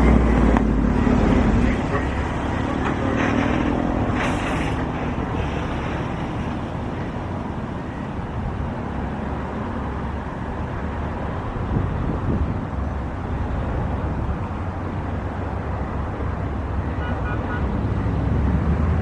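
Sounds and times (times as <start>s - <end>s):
wind buffeting microphone: 11.4s - 15.3s.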